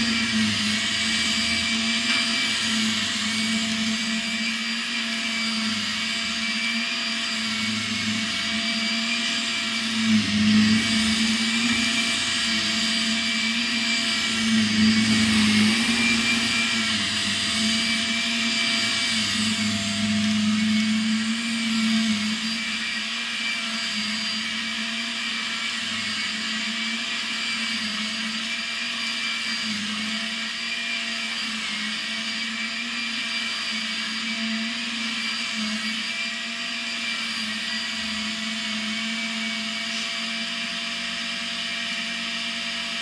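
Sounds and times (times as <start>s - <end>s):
stick vacuum running: 0.0s - 43.0s.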